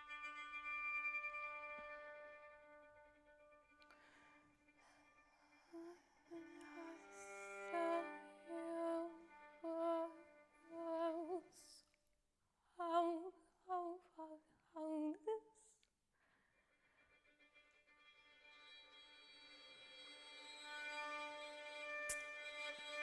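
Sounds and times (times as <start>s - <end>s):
woman singing with vibrato: 5.8s - 11.8s, 12.8s - 15.7s.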